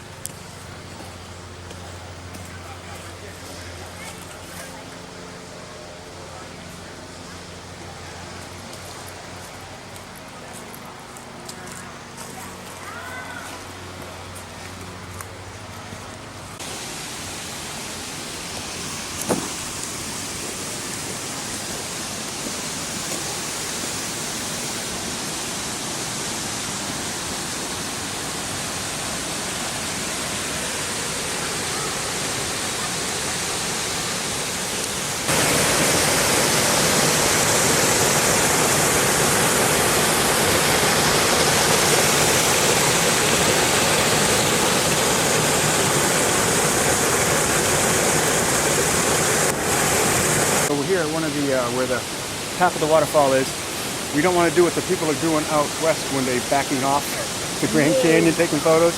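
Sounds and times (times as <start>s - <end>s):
waterfall rushing: 16.2s - 58.9s.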